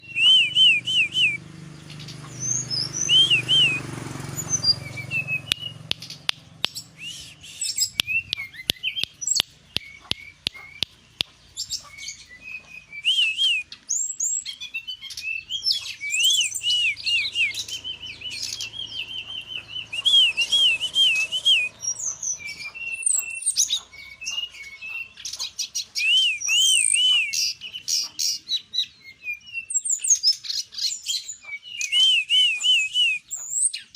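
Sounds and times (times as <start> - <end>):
bird singing whistled notes: 0.0 - 33.9
high bird trills: 0.0 - 33.9
sharp bird clicks: 4.4 - 28.4.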